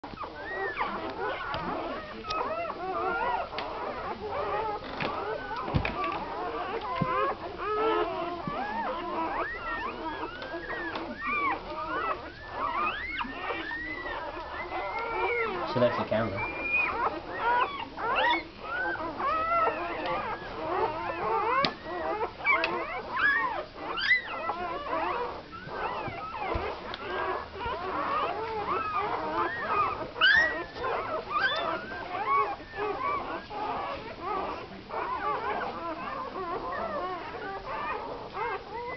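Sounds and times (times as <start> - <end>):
puppies squeaking and whimpering: 0.0 - 38.9.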